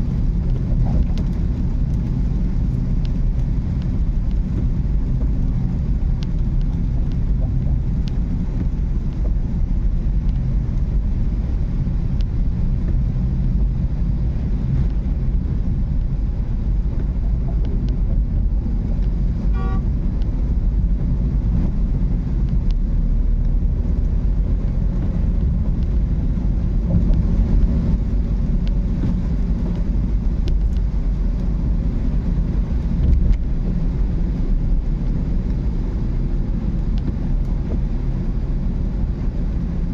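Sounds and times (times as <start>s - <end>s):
car engine and tyres rumbling: 0.0s - 39.9s
car horn honk: 19.5s - 19.9s.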